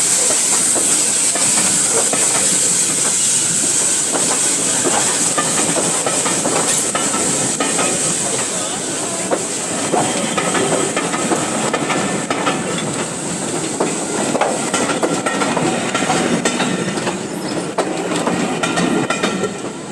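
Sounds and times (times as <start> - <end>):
train rumbling: 0.0 - 19.9
wheels clicking over rail joints: 4.1 - 8.6, 9.3 - 19.8.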